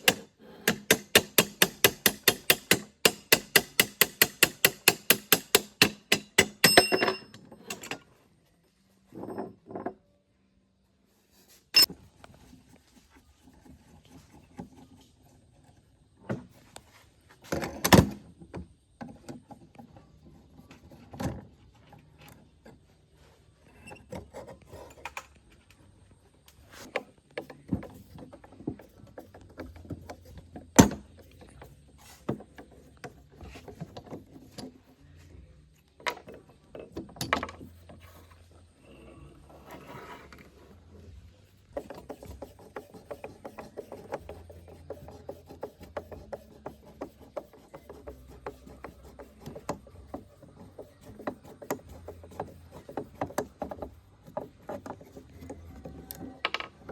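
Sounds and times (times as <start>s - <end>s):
machine parts knocking and clinking: 0.0s - 8.0s.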